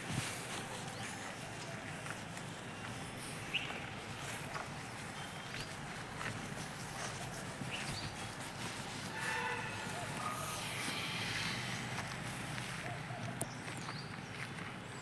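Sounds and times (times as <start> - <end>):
outdoor background noise: 0.0 - 15.0
distant pitched call: 8.8 - 13.4.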